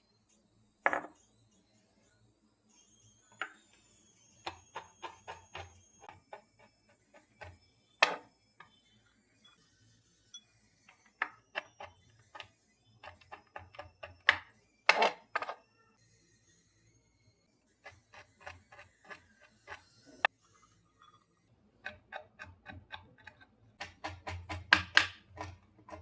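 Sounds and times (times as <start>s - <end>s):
kitchenware taps and clinks: 0.9s - 1.2s, 3.4s - 3.6s, 4.5s - 6.4s, 7.2s - 8.8s, 13.1s - 15.6s, 21.9s - 26.0s.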